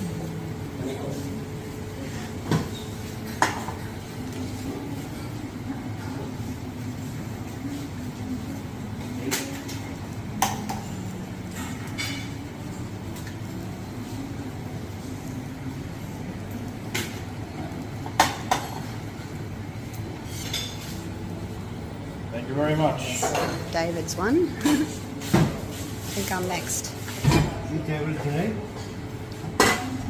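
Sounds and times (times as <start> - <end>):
low background hum: 0.0 - 30.0
dishes and cutlery clinking: 9.2 - 13.4, 20.2 - 21.1, 23.0 - 23.8, 27.1 - 30.0.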